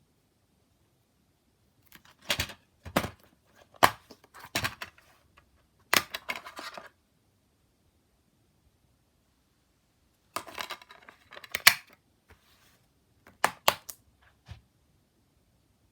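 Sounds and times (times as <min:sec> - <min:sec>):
plastic case clicking: 0:05.9 - 0:06.8, 0:10.4 - 0:12.0, 0:13.3 - 0:14.0.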